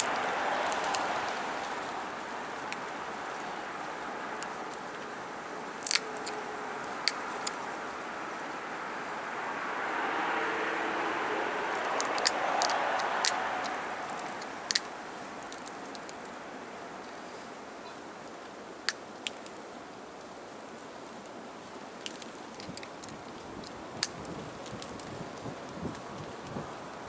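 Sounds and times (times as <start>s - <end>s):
steady rushing noise: 0.0s - 27.0s
sharp clicks of stone flaking: 5.8s - 7.8s, 12.0s - 16.3s.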